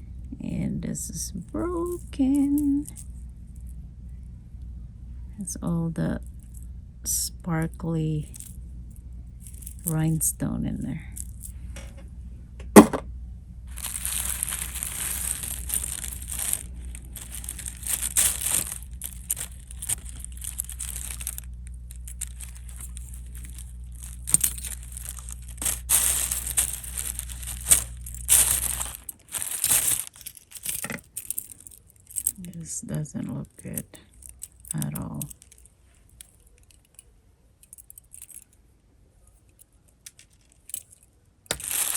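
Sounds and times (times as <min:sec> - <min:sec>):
jewelry rustling and clicking: 0:01.4 - 0:03.7, 0:09.4 - 0:12.0, 0:13.7 - 0:38.6, 0:39.2 - 0:41.9.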